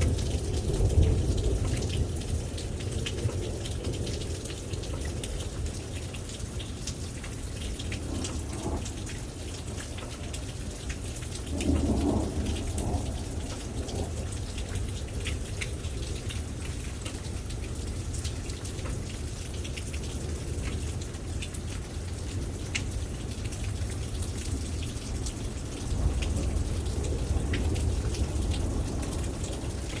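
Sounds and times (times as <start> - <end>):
thunder rumbling: 0.0 - 17.0, 24.5 - 30.0
rain pattering: 0.0 - 30.0.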